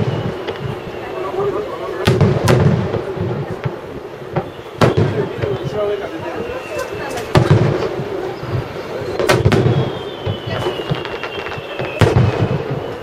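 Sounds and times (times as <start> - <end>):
high whistle sliding downward: 0.0 - 2.0, 4.3 - 7.3, 9.0 - 13.0
firework shells bursting: 2.0 - 13.0.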